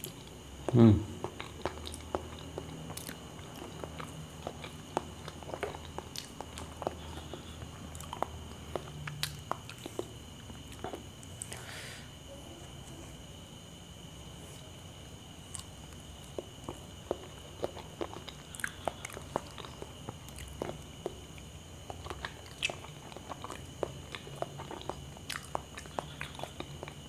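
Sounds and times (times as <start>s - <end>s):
wet chewing mouth clicks: 21.8s - 27.0s.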